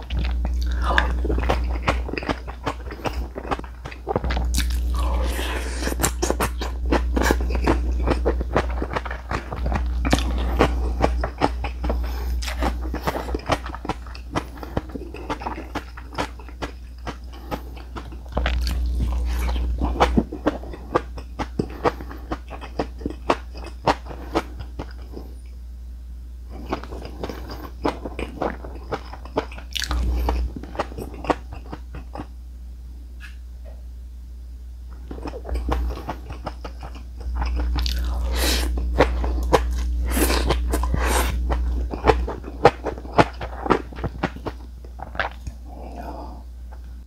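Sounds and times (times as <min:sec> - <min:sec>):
crisp crunching while chewing: 0:00.0 - 0:25.3, 0:34.9 - 0:45.8.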